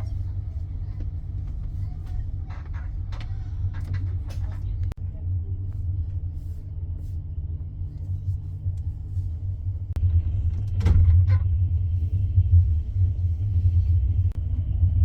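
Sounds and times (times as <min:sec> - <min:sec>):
passenger train rumbling: 0:00.0 - 0:15.0.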